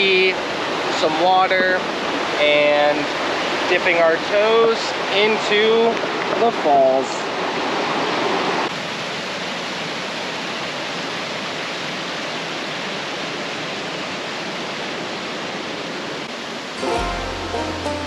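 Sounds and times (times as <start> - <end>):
waterfall rushing: 16.2 - 18.0.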